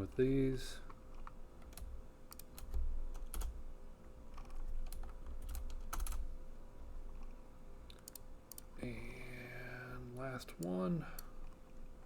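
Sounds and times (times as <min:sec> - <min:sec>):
steady low hum: 0:00.0 - 0:12.0
computer keyboard typing: 0:01.6 - 0:03.6, 0:04.3 - 0:06.2.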